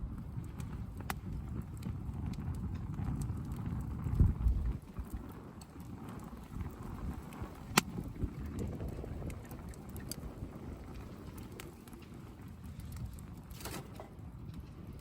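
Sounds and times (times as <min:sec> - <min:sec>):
campfire crackling: 0:00.0 - 0:15.0
sharp pop: 0:07.7 - 0:07.9.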